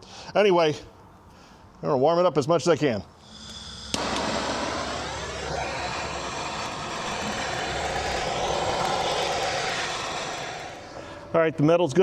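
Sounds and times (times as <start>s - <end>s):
torch flame hissing: 4.0s - 11.4s.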